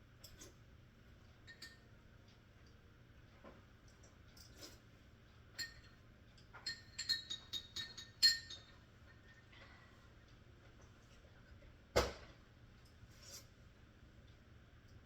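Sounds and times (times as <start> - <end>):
kitchenware clinking: 5.6 - 9.8.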